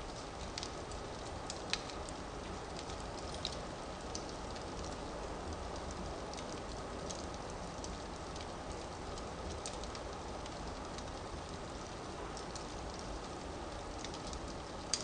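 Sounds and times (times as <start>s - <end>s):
fire crackles and pops: 0.0s - 15.0s
fire hissing and rumbling: 0.0s - 15.0s.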